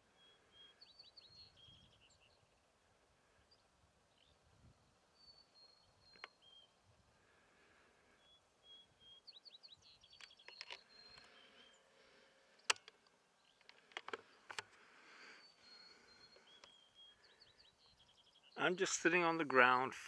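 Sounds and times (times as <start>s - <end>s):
faint songbird calls: 0.0s - 19.8s
sharp clicks: 12.6s - 14.8s.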